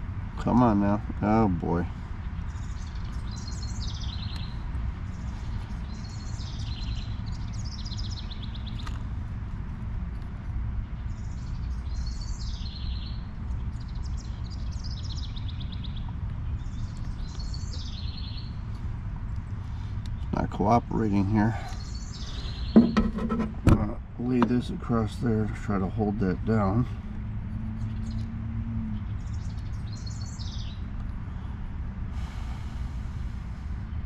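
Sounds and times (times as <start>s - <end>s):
steady low rumble: 0.0s - 34.0s
songbird singing with trill: 2.2s - 9.0s, 10.9s - 23.1s, 27.7s - 30.9s.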